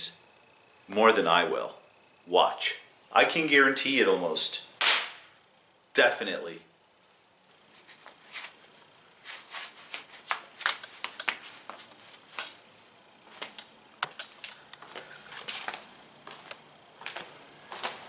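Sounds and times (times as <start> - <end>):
rustling: 7.0 - 18.0.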